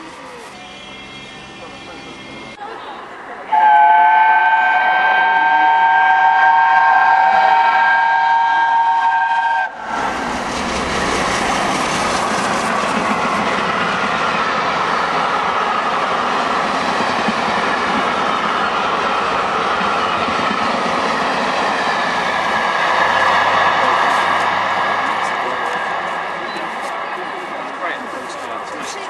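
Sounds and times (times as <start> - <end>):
steam locomotive whistle: 3.5 - 10.1
train rushing and clattering past: 7.5 - 29.0.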